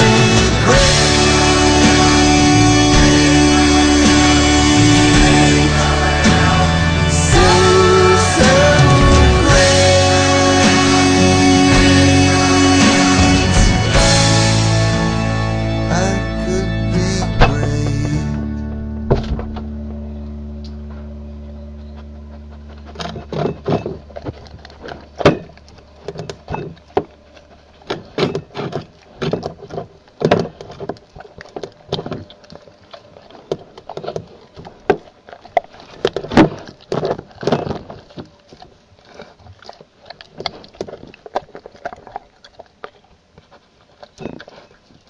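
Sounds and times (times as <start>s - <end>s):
irregular knocks and clatters: 27.9s - 32.4s.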